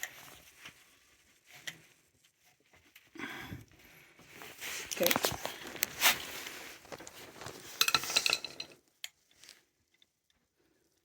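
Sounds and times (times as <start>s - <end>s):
metal tools clinking and scraping: 7.5s - 8.8s.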